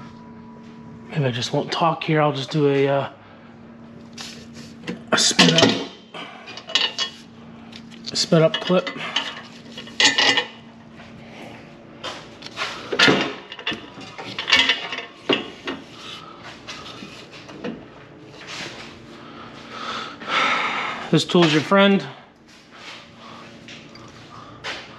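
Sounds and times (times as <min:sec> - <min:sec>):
metallic clanks of hand tools: 0:05.3 - 0:07.2, 0:08.3 - 0:10.5, 0:12.9 - 0:15.8.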